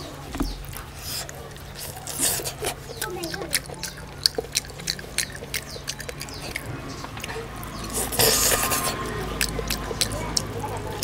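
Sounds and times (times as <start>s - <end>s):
mouth clicks and smacks: 0.0s - 11.0s
wet chewing: 0.0s - 11.0s
hissing rustle: 0.1s - 3.7s, 6.4s - 9.9s.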